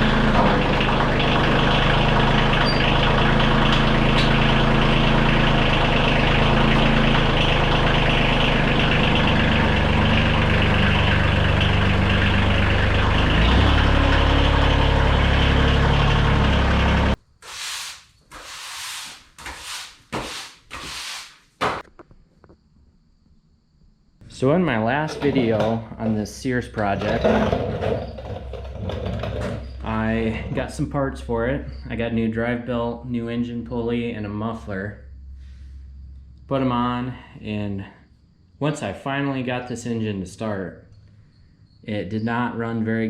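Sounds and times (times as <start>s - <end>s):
garden tractor engine running: 0.0s - 17.2s, 24.7s - 31.0s.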